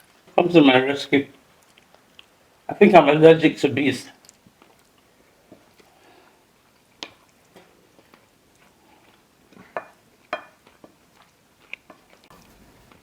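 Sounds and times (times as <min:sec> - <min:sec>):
quiet chewing: 0:01.3 - 0:02.6, 0:04.2 - 0:13.0.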